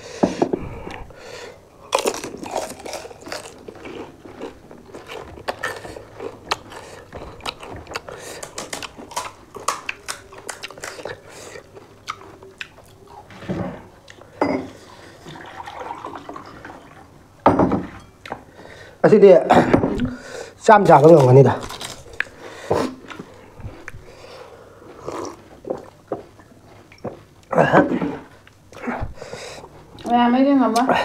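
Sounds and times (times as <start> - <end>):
crisp shells crunching while chewed: 1.8 - 13.1, 20.8 - 24.1.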